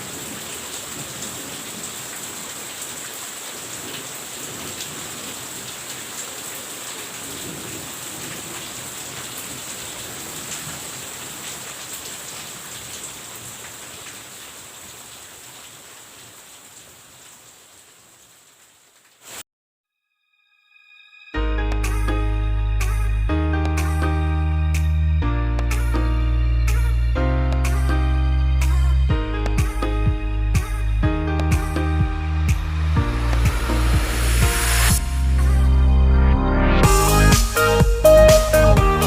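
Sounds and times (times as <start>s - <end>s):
rain falling: 0.0s - 19.4s, 28.6s - 35.7s, 36.8s - 39.0s.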